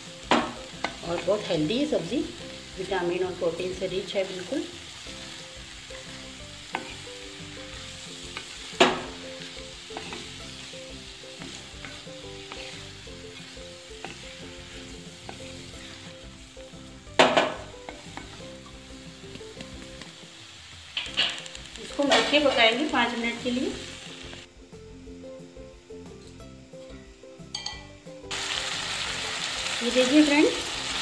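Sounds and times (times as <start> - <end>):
vegetables sizzling in hot oil: 0.0 - 31.0
spatula stirring in pan: 3.6 - 20.0.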